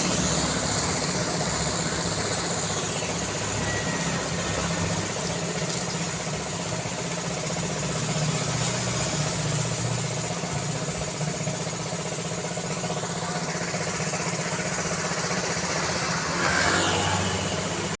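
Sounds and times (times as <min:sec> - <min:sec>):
vehicle engines and tyre noise: 0:00.0 - 0:18.0
vehicle passing close: 0:15.0 - 0:18.0.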